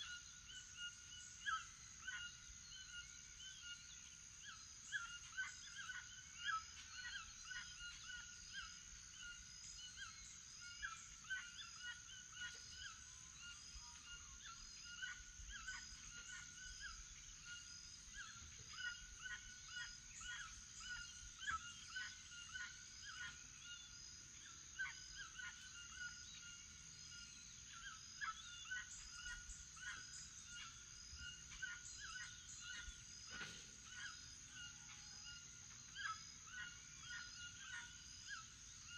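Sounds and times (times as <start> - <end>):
birds calling: 24.7 - 38.9.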